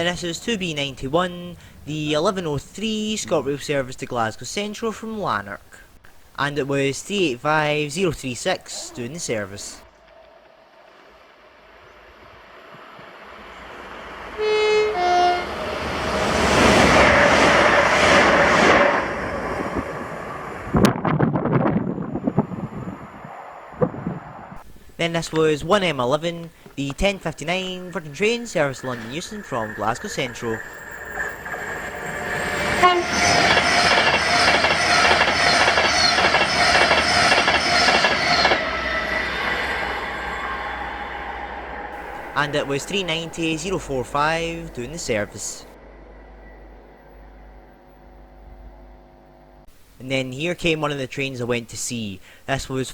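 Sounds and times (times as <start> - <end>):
electric train passing: 9.2 - 26.3, 27.0 - 49.7
train horn notes: 12.0 - 16.5, 32.8 - 48.8
carriages clattering: 26.6 - 38.8.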